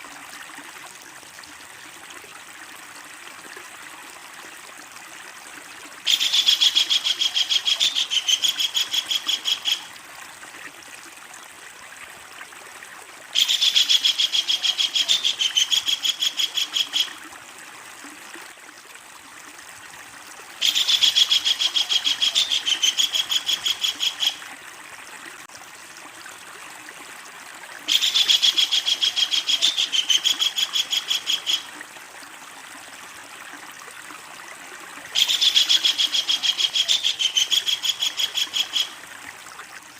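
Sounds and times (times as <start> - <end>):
kingfisher chattering call: 6.1 - 9.8, 13.4 - 17.1, 20.6 - 24.4, 27.9 - 31.7, 35.2 - 38.9.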